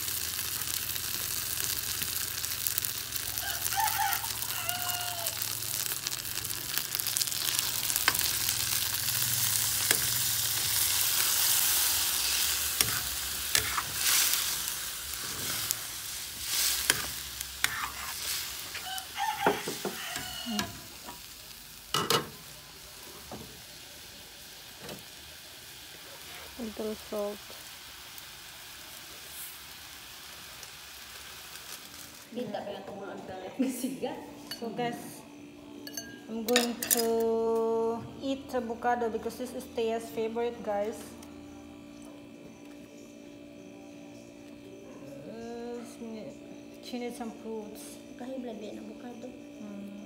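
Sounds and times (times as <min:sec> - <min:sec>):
sauce sizzling in a wok: 0:00.0 - 0:44.7
rooster crowing: 0:03.2 - 0:05.8, 0:18.5 - 0:21.2.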